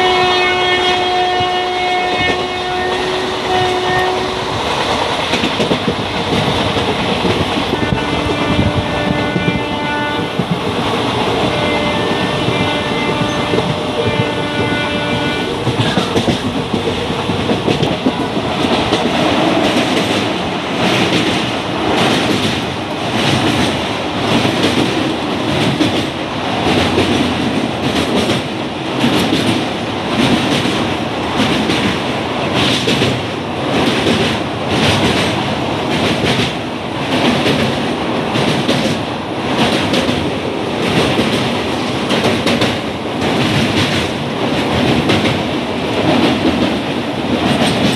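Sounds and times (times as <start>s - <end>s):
multi-tone train horn: 0.0s - 4.6s, 7.6s - 10.6s, 11.2s - 16.4s
train wheels clattering over joints: 4.8s - 39.0s, 39.6s - 47.9s.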